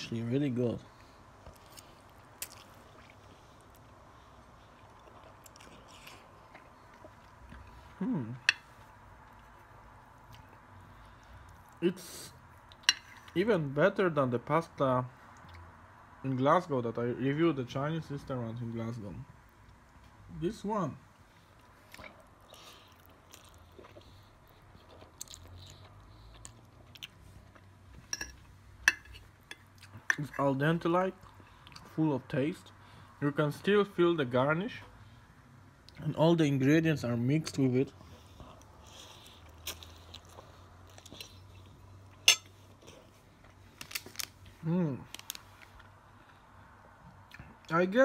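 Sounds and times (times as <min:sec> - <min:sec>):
person chewing noodles: 0:01.4 - 0:11.8, 0:21.5 - 0:28.1, 0:38.0 - 0:44.4
person humming: 0:08.0 - 0:08.5.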